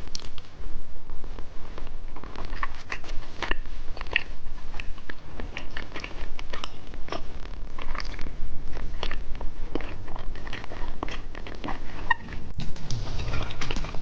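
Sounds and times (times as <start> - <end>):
low steady hum: 0.0 - 14.0
candy crunching and chewing: 2.1 - 12.6.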